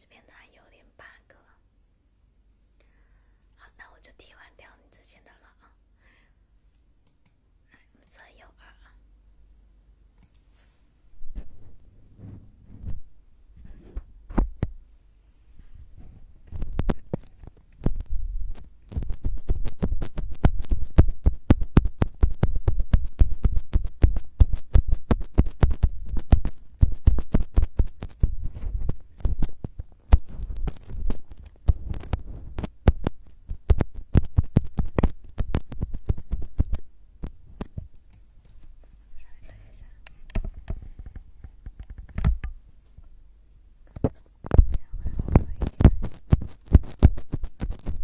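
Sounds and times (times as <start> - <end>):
tapping and scratching on microphone: 11.2 - 14.9, 15.6 - 43.1, 43.8 - 48.0
low thuds: 17.8 - 37.9.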